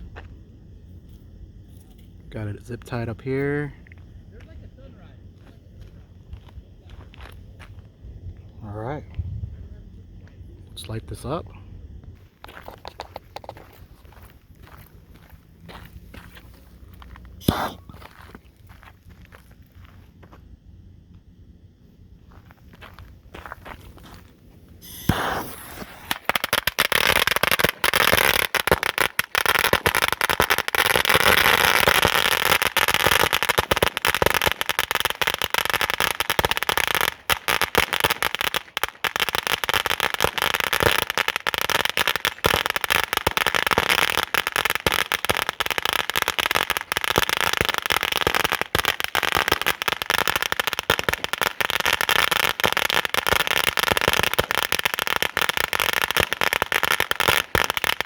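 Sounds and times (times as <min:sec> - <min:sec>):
firecrackers popping rapidly: 0:12.1 - 0:20.2, 0:22.2 - 0:58.0.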